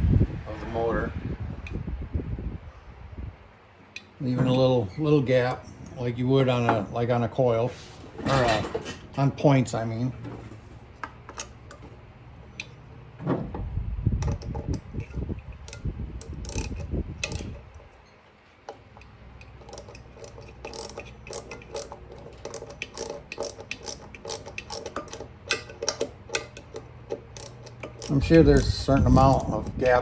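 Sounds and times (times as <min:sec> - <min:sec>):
metallic clicking and ratcheting: 0:14.2 - 0:17.7, 0:18.7 - 0:30.0.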